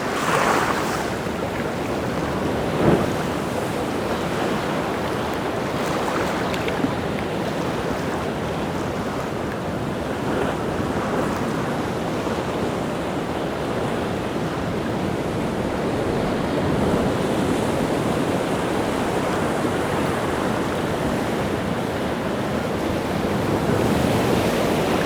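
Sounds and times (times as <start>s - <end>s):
rough sea surf: 0.0s - 25.0s
wave crashing: 2.1s - 4.3s.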